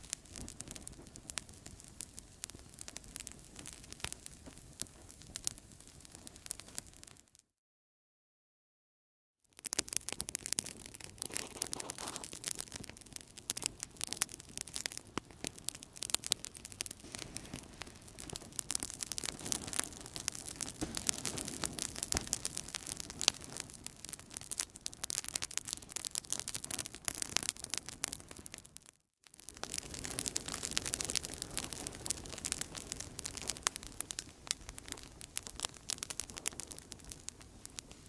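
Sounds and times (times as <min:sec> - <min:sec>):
campfire popping and snapping: 0:00.0 - 0:07.2, 0:09.5 - 0:38.0
soft fire hiss: 0:16.8 - 0:23.6.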